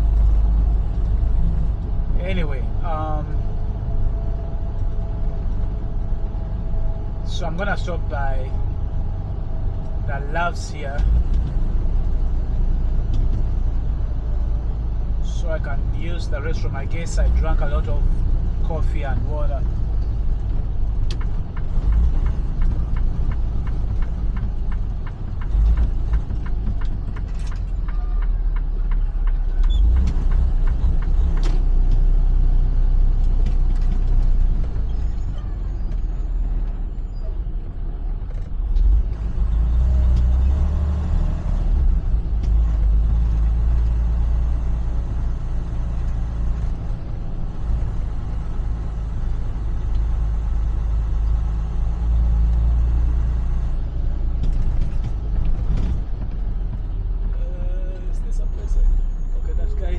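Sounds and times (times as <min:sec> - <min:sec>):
truck diesel engine running: 0:00.0 - 0:15.9.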